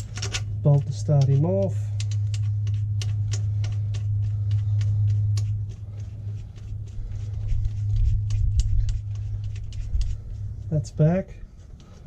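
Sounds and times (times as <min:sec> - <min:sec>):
steady low hum: 0:00.0 - 0:12.0
metallic clicks and taps: 0:02.0 - 0:04.1.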